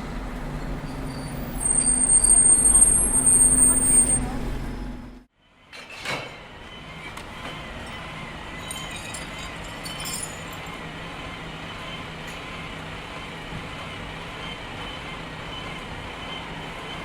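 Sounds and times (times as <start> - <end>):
rumble of vehicle noise: 0.0 - 5.3.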